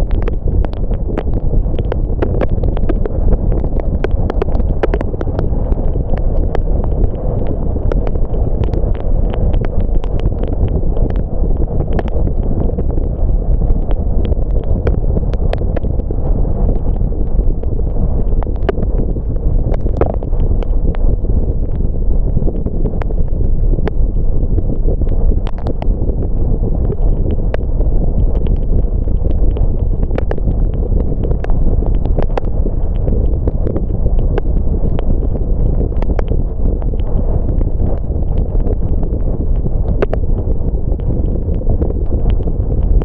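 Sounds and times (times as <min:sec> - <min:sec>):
raindrops ticking on car: 0:00.0 - 0:13.0.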